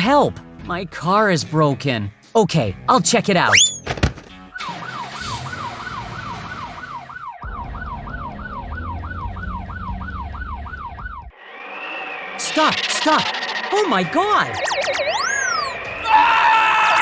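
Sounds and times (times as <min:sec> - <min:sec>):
siren yelping: 0:03.5 - 0:03.9, 0:04.5 - 0:17.0.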